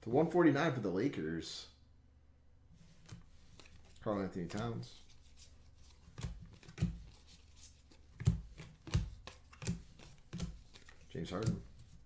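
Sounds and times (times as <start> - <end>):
cards tapping on a table: 8.2 - 12.0.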